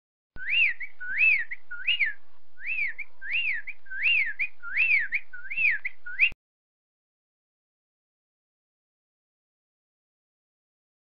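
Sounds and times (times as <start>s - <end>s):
bird whistling a note: 0.4s - 6.4s.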